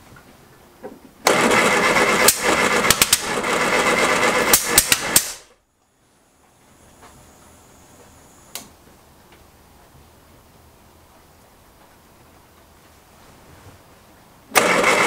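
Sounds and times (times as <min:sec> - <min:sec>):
engine cranking on starter: 0:01.2 - 0:05.5, 0:14.5 - 0:15.0
single click: 0:08.5 - 0:08.8.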